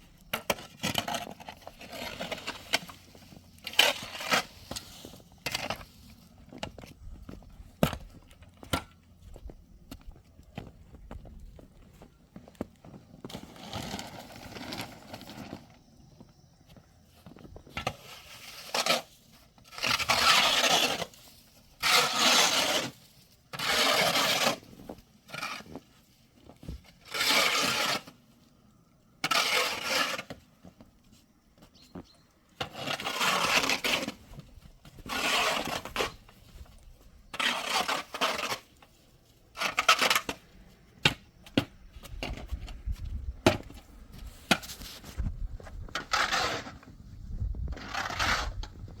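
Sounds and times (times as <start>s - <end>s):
rough scraping strokes: 0.5s - 6.3s, 17.7s - 26.1s, 27.0s - 28.2s, 29.2s - 30.5s, 32.6s - 36.6s, 37.3s - 40.4s, 45.9s - 46.9s, 47.7s - 48.9s.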